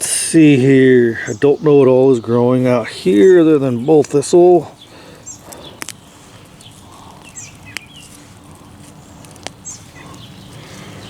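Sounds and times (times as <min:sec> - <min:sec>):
outdoor rumble: 0:00.0 - 0:11.0
small birds chirping: 0:00.0 - 0:11.0
sharp clicks: 0:05.4 - 0:06.0, 0:07.2 - 0:08.1.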